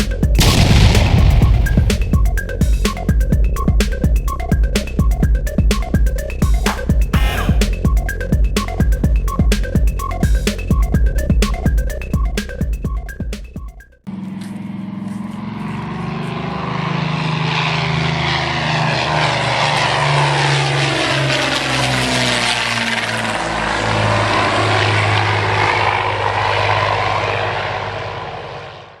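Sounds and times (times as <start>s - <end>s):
propeller airplane flying past: 0.0s - 3.2s, 14.1s - 29.0s.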